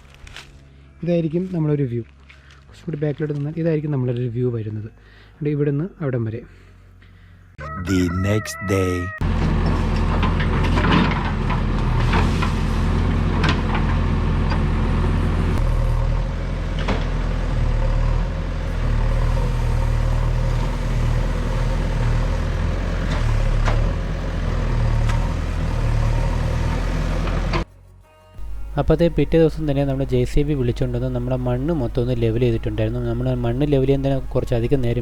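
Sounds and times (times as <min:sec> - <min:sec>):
diesel excavator engine running: 0:09.2 - 0:27.7, 0:28.4 - 0:35.0.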